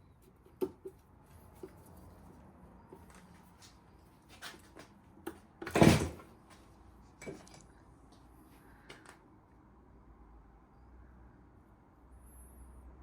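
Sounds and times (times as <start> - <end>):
loud metal clunk: 5.7 - 6.2.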